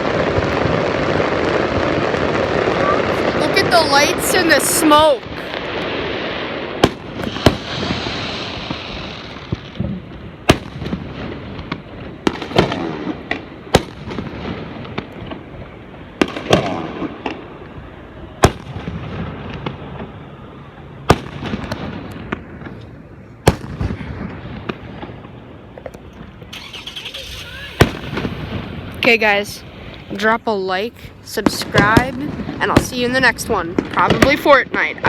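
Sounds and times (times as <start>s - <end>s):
crackling rumble: 0.0s - 35.0s
firework shells bursting: 6.7s - 9.8s, 21.1s - 30.4s.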